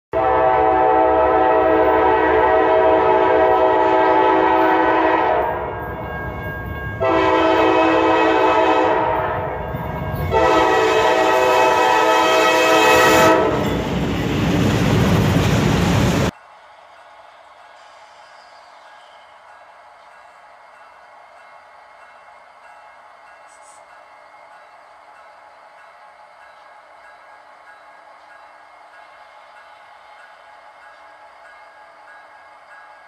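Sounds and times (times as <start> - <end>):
locomotive air horn blasts: 0.1 - 5.8, 7.0 - 13.8
passing train rumble and clatter: 0.2 - 33.0.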